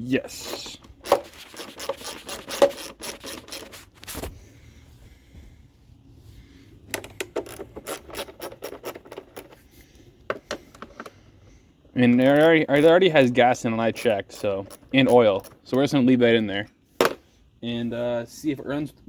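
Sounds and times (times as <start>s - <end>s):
socket ratchet clicking: 6.9s - 9.6s.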